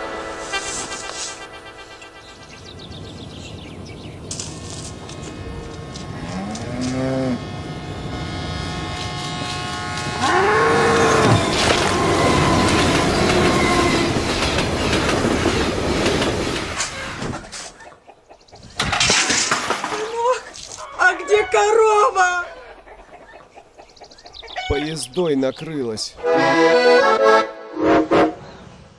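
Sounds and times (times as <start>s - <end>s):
train passing: 0.0s - 6.2s, 10.8s - 17.2s
cow mooing: 5.9s - 12.7s.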